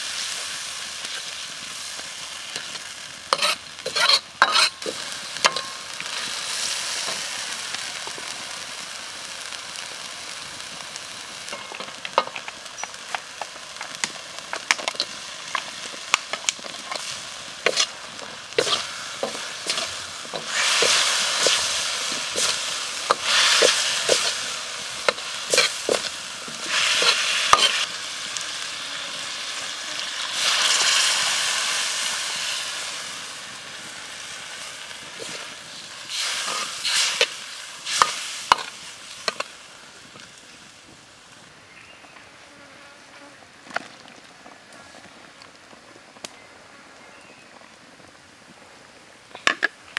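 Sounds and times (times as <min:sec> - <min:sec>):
paste frying in oil: 0:00.0 - 0:40.4
metal ladle scraping wok: 0:03.3 - 0:05.8, 0:18.6 - 0:27.9.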